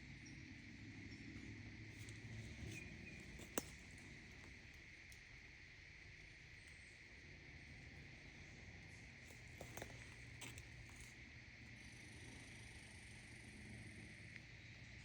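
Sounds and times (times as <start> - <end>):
crickets chirping: 0.0 - 15.0
twig snaps: 2.0 - 4.5.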